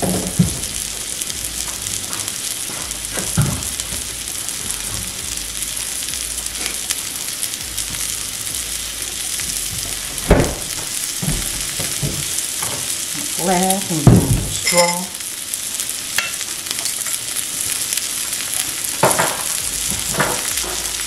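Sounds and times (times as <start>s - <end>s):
sausage and pepper sizzling: 0.0s - 21.0s
loud thump: 10.2s - 12.2s, 14.1s - 14.6s.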